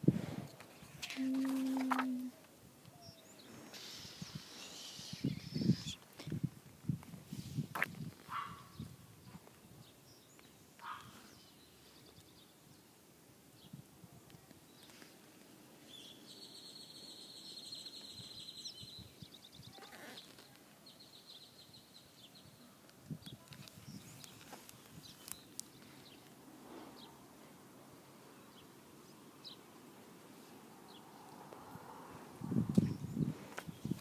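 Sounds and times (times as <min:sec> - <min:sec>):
book pages rustling: 0:01.2 - 0:02.2.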